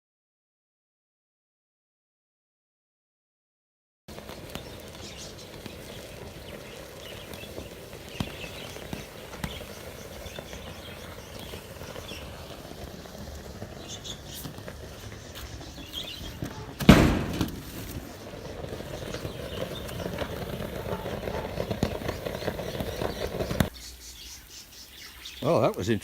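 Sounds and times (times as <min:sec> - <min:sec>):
furnace flaring blast: 0:04.1 - 0:23.7
small crackles: 0:04.1 - 0:26.0.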